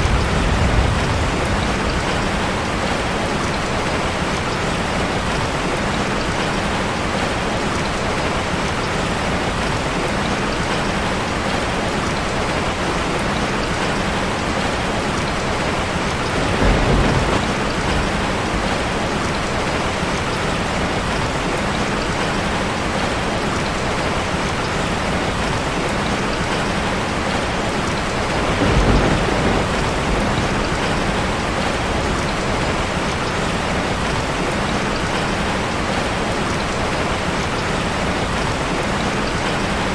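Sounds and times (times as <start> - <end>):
low thunder rumbles: 0.0 - 4.2, 15.4 - 21.3, 28.0 - 34.2
rain drumming on a metal roof: 0.0 - 39.9.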